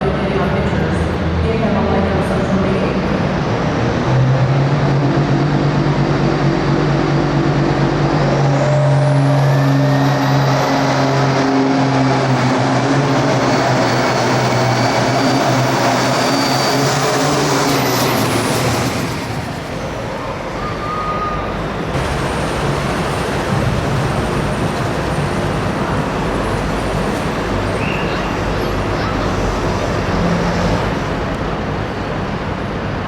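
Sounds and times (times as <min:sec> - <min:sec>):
tractor diesel engine running hard: 0:02.9 - 0:20.6, 0:21.7 - 0:33.0.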